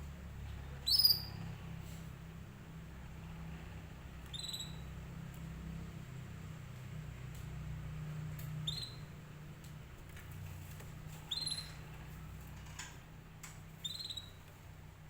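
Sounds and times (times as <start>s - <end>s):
steady low hum: 0.0s - 15.0s
canary chirping: 0.7s - 1.5s, 4.2s - 5.0s, 8.5s - 9.3s, 11.1s - 12.3s, 13.8s - 14.5s.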